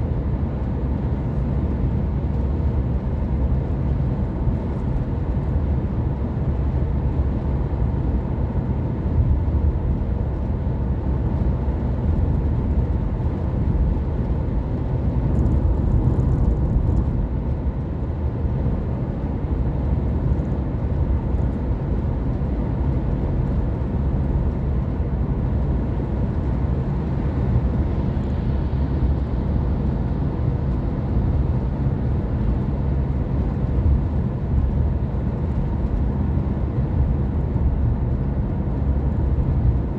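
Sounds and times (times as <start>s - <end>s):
tyre and road noise: 13.4s - 17.8s.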